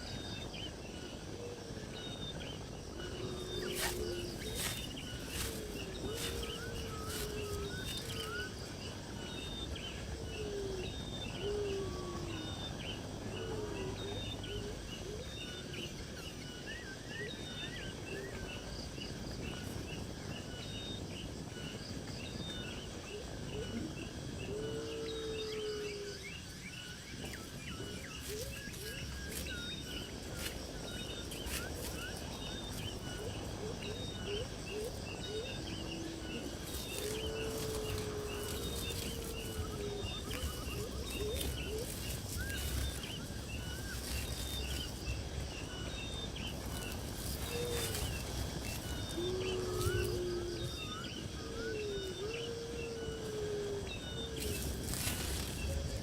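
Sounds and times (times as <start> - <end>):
lower gliding calls: 0.0 - 15.7, 22.6 - 56.0
steady hiss: 0.8 - 11.1, 25.5 - 50.6.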